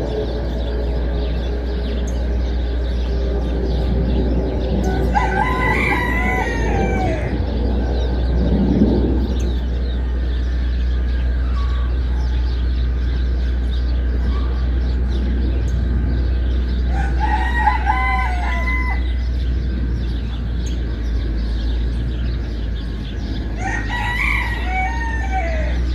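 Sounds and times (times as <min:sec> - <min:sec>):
steady low hum: 0:00.0 - 0:25.9
rooster crowing: 0:04.8 - 0:08.0, 0:16.8 - 0:20.1, 0:23.1 - 0:25.9.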